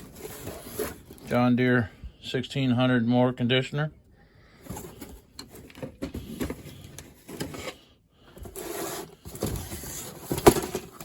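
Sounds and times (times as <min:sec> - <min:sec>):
packaging rustling: 0:00.0 - 0:01.4, 0:04.6 - 0:11.0.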